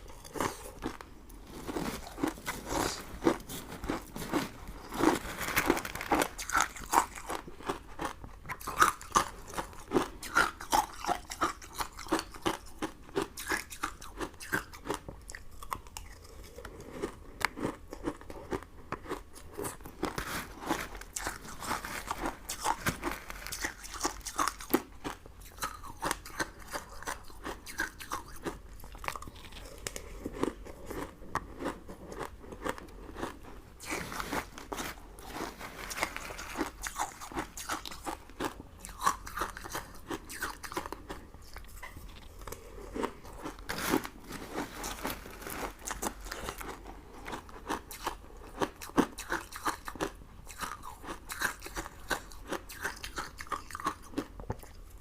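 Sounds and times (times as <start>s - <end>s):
crunchy candy chewing: 0.0s - 55.0s.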